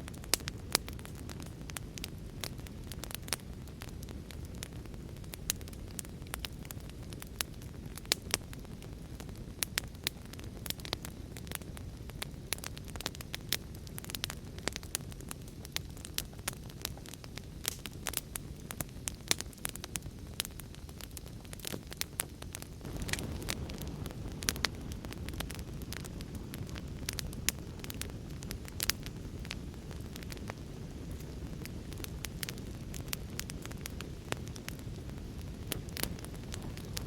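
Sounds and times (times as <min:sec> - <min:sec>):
wood fire crackling and popping: 0:00.0 - 0:37.0.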